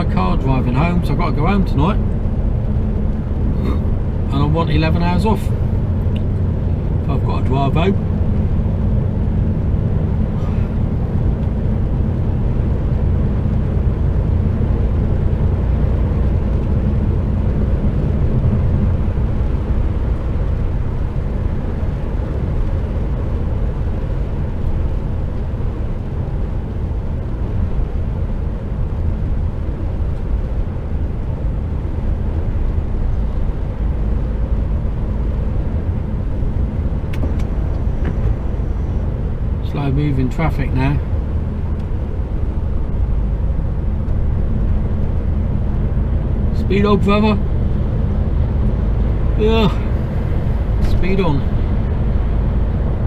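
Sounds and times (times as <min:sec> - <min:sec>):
truck diesel engine rumble: 0:00.0 - 0:53.0.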